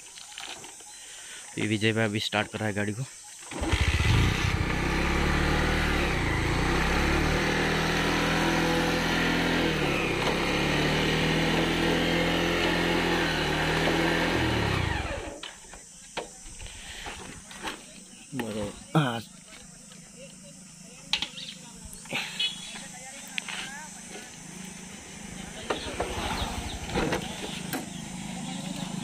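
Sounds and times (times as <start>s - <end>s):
motorcycle engine running: 3.5s - 15.4s, 18.9s - 29.0s.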